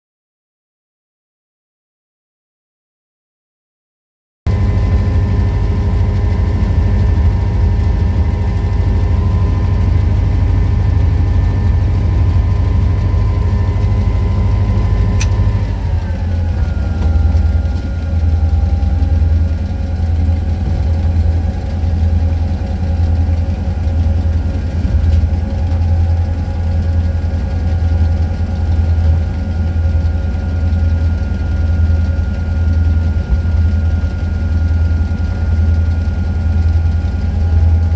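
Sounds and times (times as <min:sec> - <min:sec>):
diesel locomotive engine running: 0:04.5 - 0:37.9
sharp click: 0:15.1 - 0:15.6.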